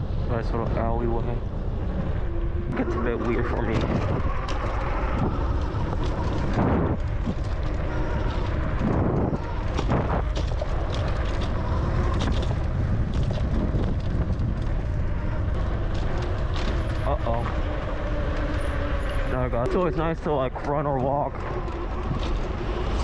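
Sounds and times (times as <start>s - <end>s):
wind rumble on microphone: 0.0s - 23.0s
bicycle clicks and knocks: 3.7s - 19.3s.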